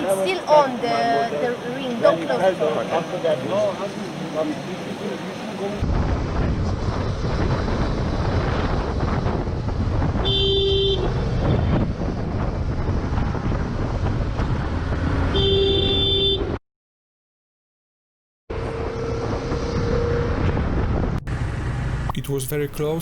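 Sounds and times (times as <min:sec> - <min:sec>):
traffic noise: 0:00.0 - 0:16.6, 0:18.5 - 0:23.0
wind noise on microphone: 0:05.8 - 0:16.6, 0:18.6 - 0:22.2
vehicle horn blowing: 0:10.2 - 0:11.8, 0:15.3 - 0:16.6.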